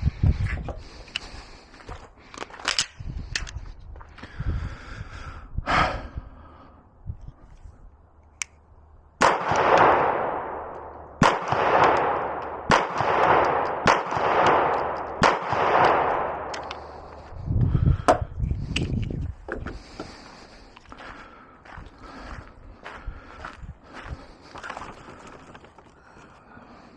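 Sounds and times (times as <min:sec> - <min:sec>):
gun handling noise: 0:02.2 - 0:03.7, 0:14.5 - 0:17.3, 0:18.1 - 0:21.0
pistol shots with echo: 0:09.2 - 0:17.1.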